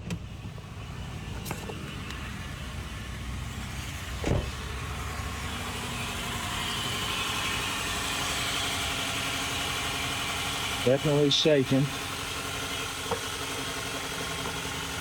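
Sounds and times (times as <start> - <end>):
car engine idling rough: 0.0 - 15.0
thump: 4.2 - 4.6.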